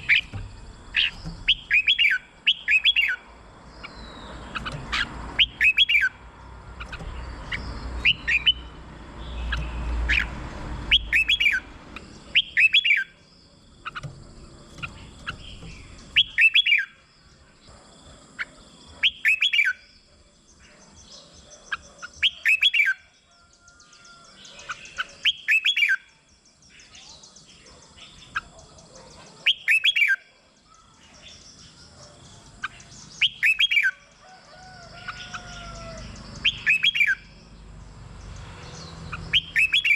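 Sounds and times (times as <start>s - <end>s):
soft bird chirps: 0.0s - 39.9s
bird whistled song phrases: 1.0s - 3.2s, 8.0s - 8.7s, 10.9s - 11.6s, 12.4s - 13.1s, 16.1s - 17.0s, 29.5s - 30.2s, 33.2s - 34.0s, 35.2s - 37.2s, 39.3s - 39.9s.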